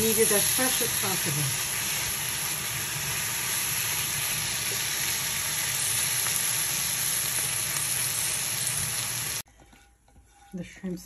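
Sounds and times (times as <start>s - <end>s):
food sizzling in a frying pan: 0.0s - 9.4s
spatula scraping: 9.4s - 11.0s.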